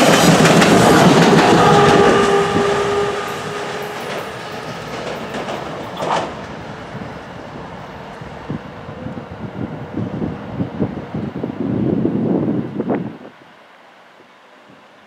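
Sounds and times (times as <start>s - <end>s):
train wheels on rails: 0.0s - 11.4s
train passing: 0.0s - 15.0s.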